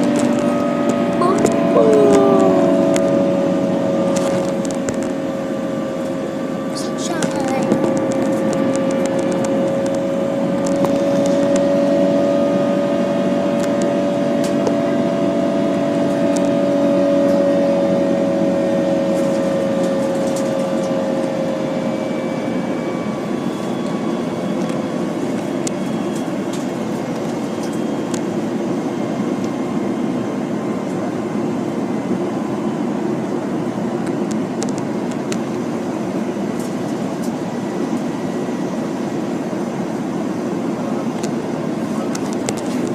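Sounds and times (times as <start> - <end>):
engine tones: 0.0 - 23.2
airplane cabin engine hum: 0.0 - 42.9.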